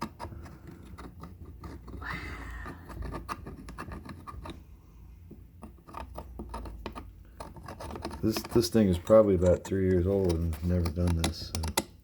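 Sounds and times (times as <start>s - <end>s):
tool scraping espresso machine: 5.6s - 11.7s
irregular clicks: 9.4s - 12.0s.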